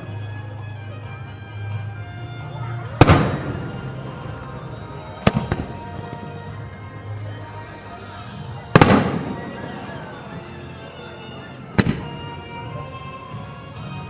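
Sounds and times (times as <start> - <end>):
music playing: 0.0 - 14.0
fireworks bursting: 3.0 - 7.2, 7.8 - 10.7, 11.7 - 12.7.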